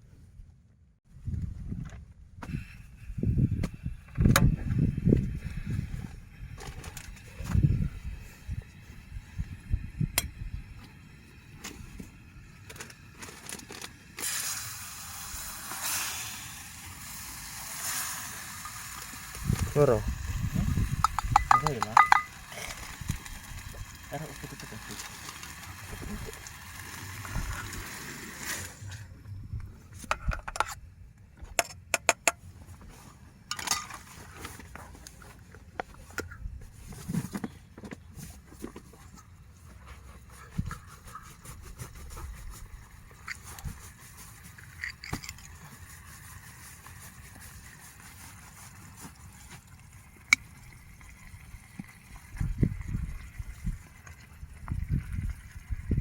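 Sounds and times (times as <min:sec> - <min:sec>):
water running and splashing: 0:16.6 - 0:28.8, 0:42.7 - 0:56.0.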